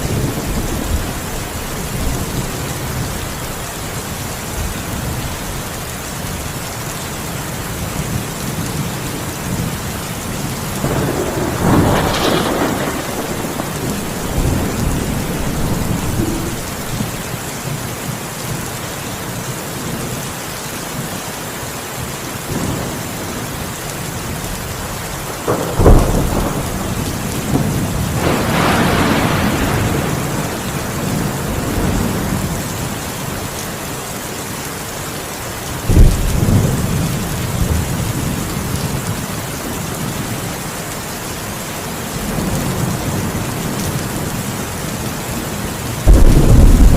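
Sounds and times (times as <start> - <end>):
heavy rain falling: 0.0 - 46.9
thunder cracks and rumbles: 10.8 - 17.4, 25.3 - 32.8, 35.9 - 39.1, 46.0 - 46.9.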